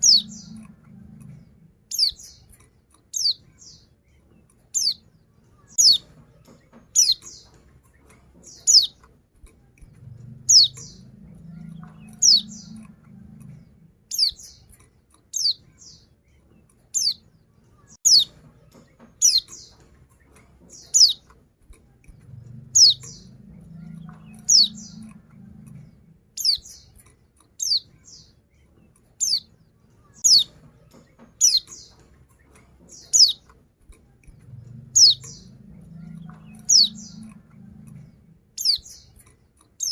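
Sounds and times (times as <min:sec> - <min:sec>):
bird chirping high downward chirps: 0:00.0 - 0:02.5, 0:03.1 - 0:04.0, 0:04.8 - 0:07.6, 0:08.4 - 0:09.1, 0:10.0 - 0:14.7, 0:15.3 - 0:16.2, 0:17.0 - 0:19.8, 0:20.8 - 0:21.3, 0:22.2 - 0:27.0, 0:27.6 - 0:28.4, 0:29.2 - 0:32.0, 0:32.9 - 0:33.5, 0:34.4 - 0:39.2.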